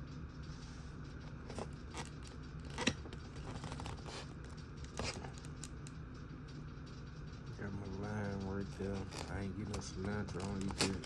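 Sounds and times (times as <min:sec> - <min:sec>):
low steady hum: 0:00.0 - 0:11.0
food wrapping crackling: 0:01.4 - 0:05.7.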